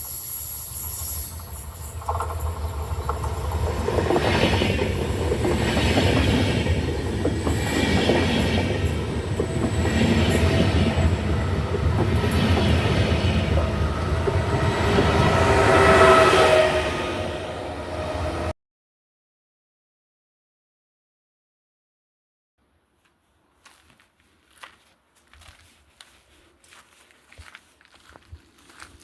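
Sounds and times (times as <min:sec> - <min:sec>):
wheel squeal: 0:00.0 - 0:05.2
train wheels rumbling on track: 0:00.0 - 0:18.5.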